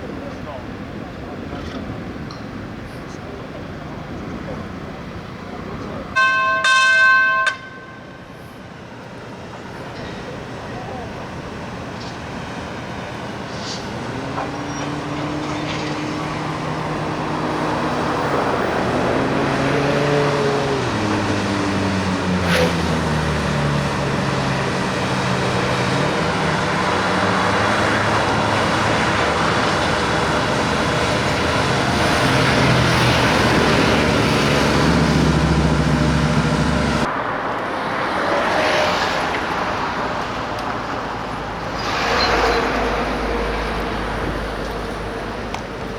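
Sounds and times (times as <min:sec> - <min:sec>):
locomotive engine running: 0:09.3 - 0:37.1.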